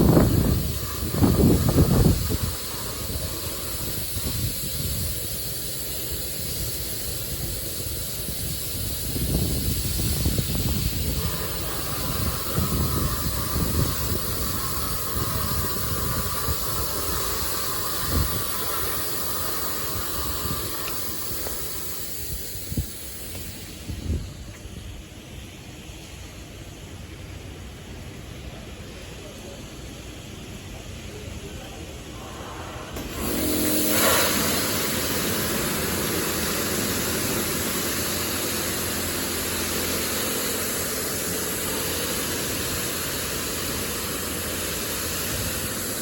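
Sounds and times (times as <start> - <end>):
low rumbling: 0.0 - 5.3, 9.7 - 22.9, 31.9 - 39.6
high steady tone: 0.0 - 5.8, 10.0 - 23.7, 32.0 - 45.5
high-pressure water jets spraying car: 0.0 - 24.2, 32.9 - 46.0.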